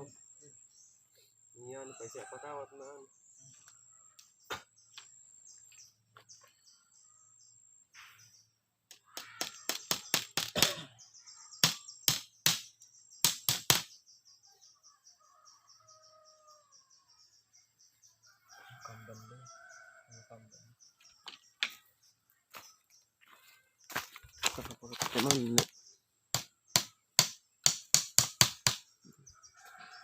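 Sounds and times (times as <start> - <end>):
loud sharp knocks: 9.1 - 10.8, 11.6 - 13.9, 26.4 - 28.8.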